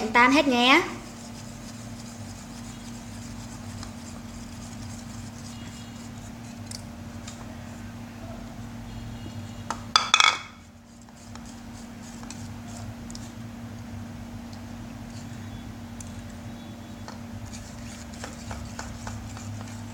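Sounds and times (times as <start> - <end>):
steady low hum: 0.0 - 19.9
stirrer clinking against bowl: 17.1 - 19.9.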